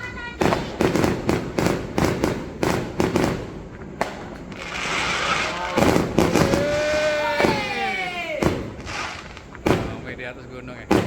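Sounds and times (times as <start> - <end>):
firework bangs: 0.0 - 11.0
hissing crackle: 2.8 - 11.0
firework whistle: 4.5 - 10.1.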